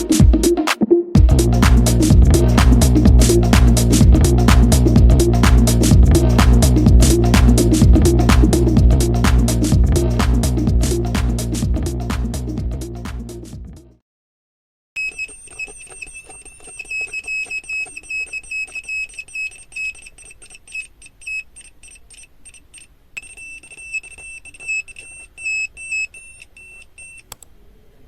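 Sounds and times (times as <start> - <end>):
electronic buzzer high tone: 15.0 - 27.3
clicks: 15.0 - 27.6.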